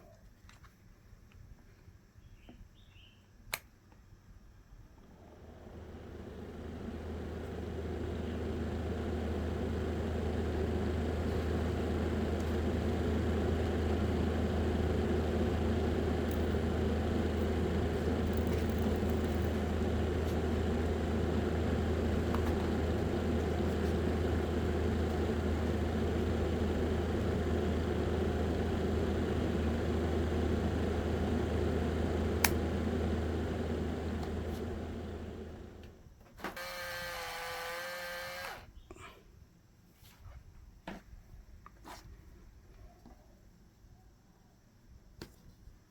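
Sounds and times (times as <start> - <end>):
small electric fan humming: 3.5 - 39.0.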